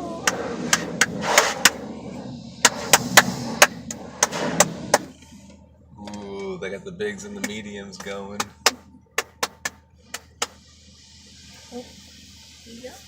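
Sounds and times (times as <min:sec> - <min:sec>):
car wash brushes slapping: 0:00.0 - 0:01.8, 0:07.4 - 0:10.6
water spraying and churning: 0:00.0 - 0:05.1.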